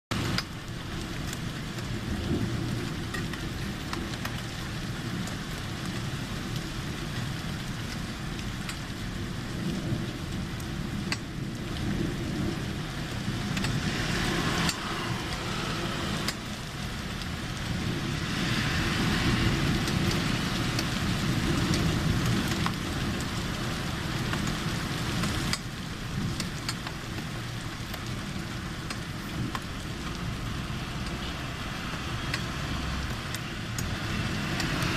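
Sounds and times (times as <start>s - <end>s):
low thunder rumble: 0.1s - 26.4s
rain falling: 0.1s - 34.9s
drip ticks: 3.1s - 4.4s, 7.9s - 8.9s, 11.0s - 11.4s, 25.2s - 25.7s, 26.3s - 27.0s, 28.8s - 30.2s, 31.0s - 31.2s, 31.9s - 32.5s, 33.1s - 33.9s.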